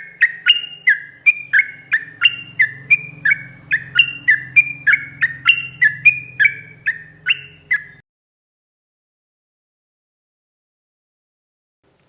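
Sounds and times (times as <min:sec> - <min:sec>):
bird singing warbled notes: 0:00.0 - 0:08.0.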